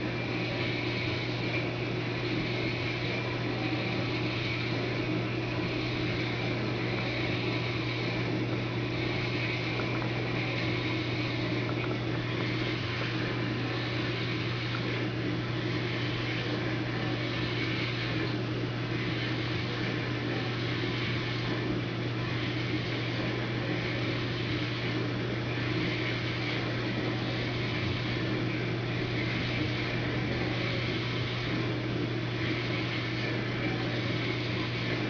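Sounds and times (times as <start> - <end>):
machine humming with hiss: 0.0 - 35.0.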